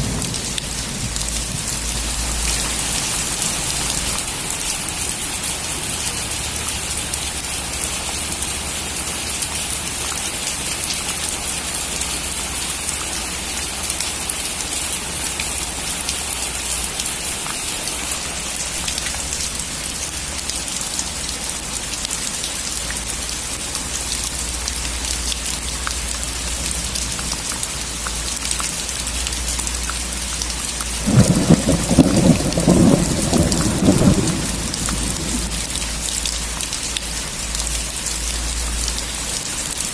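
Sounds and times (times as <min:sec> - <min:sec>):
thunder rumbling: 0:00.0 - 0:03.8, 0:31.0 - 0:36.3
heavy rain falling: 0:00.0 - 0:39.9.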